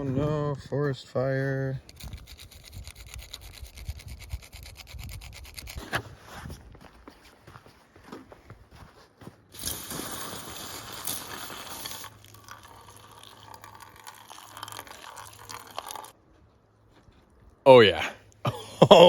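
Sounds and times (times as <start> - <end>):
liquid pouring into cup: 9.6 - 16.2.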